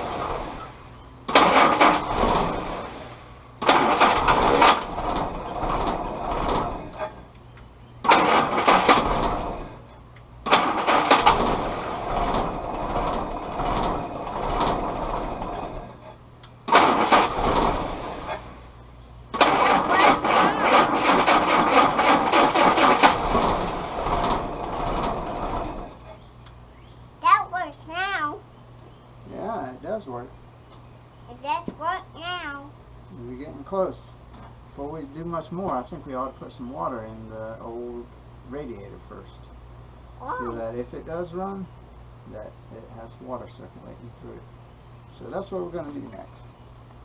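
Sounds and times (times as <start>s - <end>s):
engine firing in uneven bursts: 0.0s - 7.3s, 8.0s - 18.7s, 19.3s - 26.2s.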